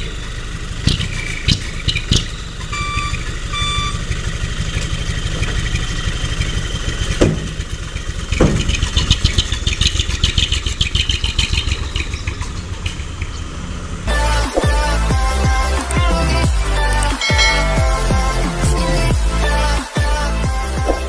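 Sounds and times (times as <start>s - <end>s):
diesel engine chugging: 0.0s - 21.0s
short beep: 2.7s - 4.0s, 17.2s - 18.0s.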